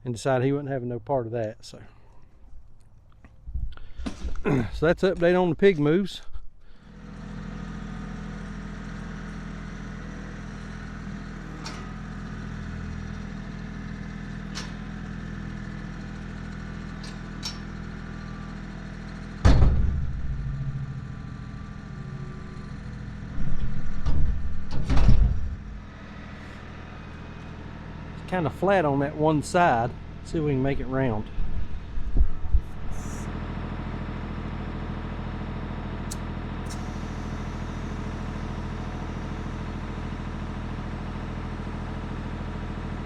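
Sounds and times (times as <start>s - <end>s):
vehicle engine idling: 6.6s - 43.0s
loud thumps and knocks: 19.4s - 20.8s, 23.4s - 25.8s.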